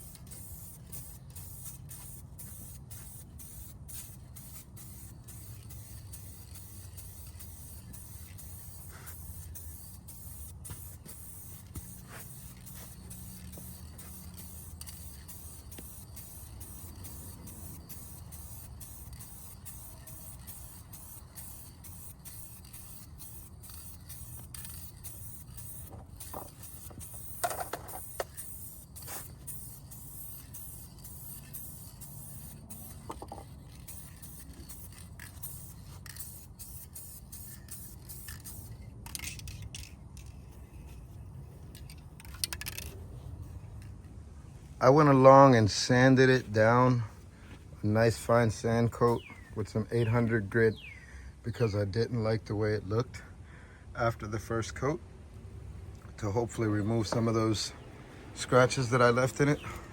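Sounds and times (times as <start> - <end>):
spray-paint can hissing: 0.0 - 40.8.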